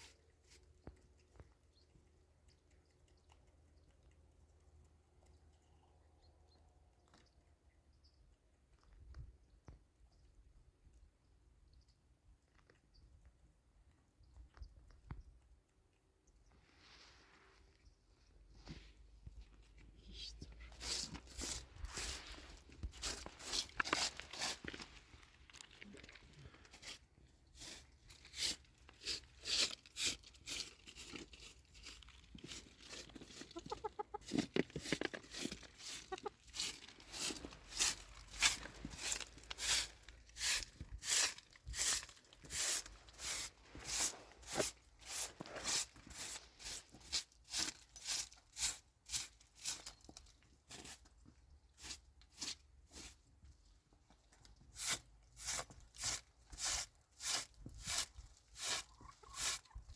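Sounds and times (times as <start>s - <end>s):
short scraping strokes: 34.8s - 47.2s.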